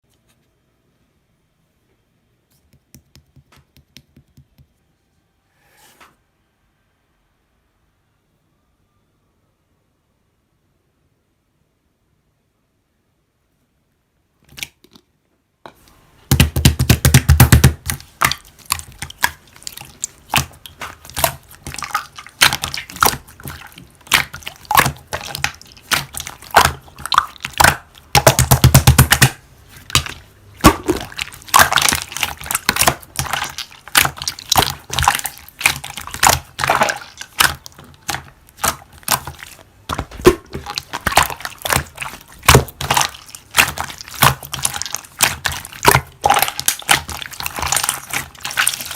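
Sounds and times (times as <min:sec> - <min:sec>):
slime squished crackling and popping: 0:16.3 - 0:48.9.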